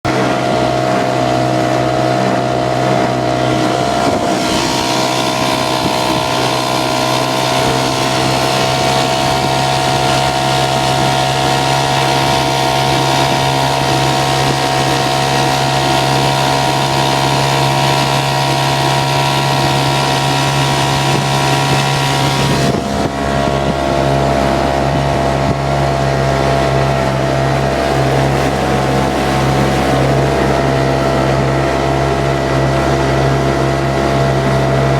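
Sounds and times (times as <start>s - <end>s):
outboard motor running: 0.0s - 34.9s
wind on microphone: 0.1s - 34.9s.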